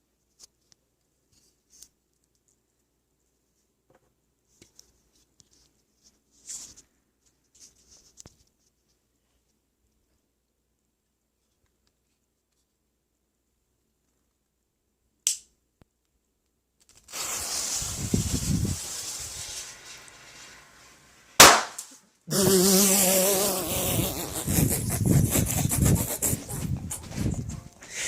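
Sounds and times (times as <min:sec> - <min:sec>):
hissing and rustling: 0:16.9 - 0:21.4
firecracker bang: 0:21.4 - 0:21.8.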